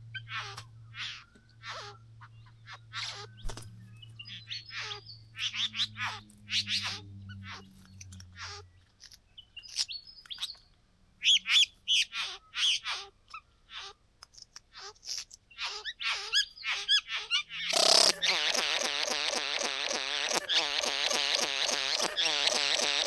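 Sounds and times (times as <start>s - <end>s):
birds making harsh calls: 0.2s - 7.8s, 11.2s - 14.0s, 14.8s - 23.0s.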